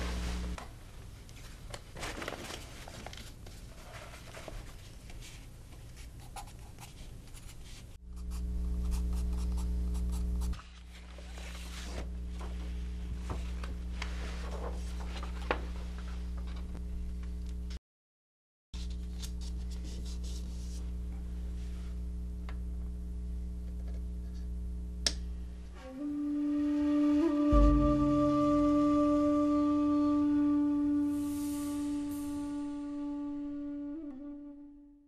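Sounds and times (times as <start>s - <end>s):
steady low hum: 0.0s - 1.6s, 5.3s - 17.8s, 18.8s - 33.9s
soft scratching and rubbing: 3.5s - 12.8s, 18.8s - 22.0s.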